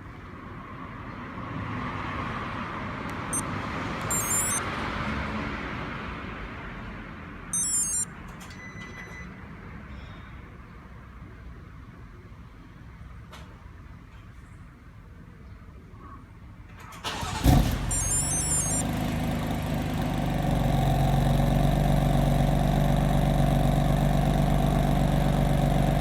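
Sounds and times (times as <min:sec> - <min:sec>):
warbling electronic chirps: 0:04.1 - 0:04.6, 0:07.6 - 0:08.0, 0:17.9 - 0:18.8.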